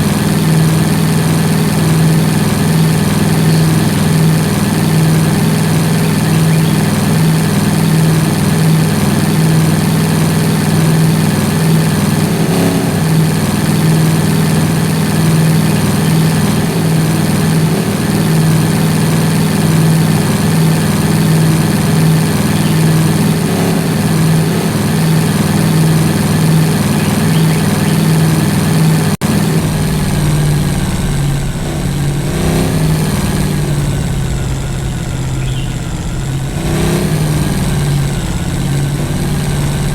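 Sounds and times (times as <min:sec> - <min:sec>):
vehicle engine running: 0:00.0 - 0:39.9
deep rumble: 0:13.6 - 0:39.9.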